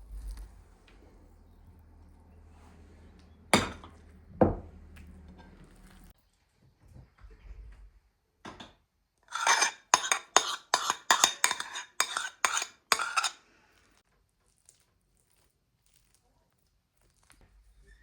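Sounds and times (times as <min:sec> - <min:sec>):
metal utensil clattering in a dish: 0:09.3 - 0:13.4.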